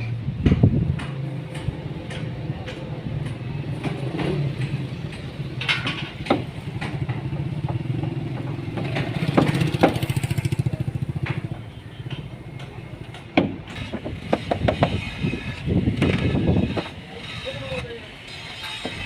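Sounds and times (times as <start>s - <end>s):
sharp knocks and clicks: 0.4s - 15.0s.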